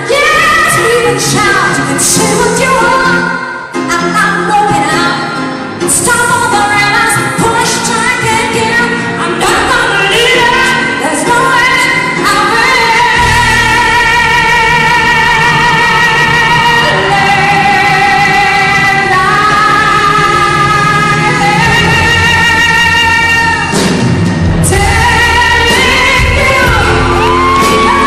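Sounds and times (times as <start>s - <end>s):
woman singing pop ballad: 0.0s - 24.0s, 24.6s - 28.0s
band accompaniment: 0.0s - 28.0s.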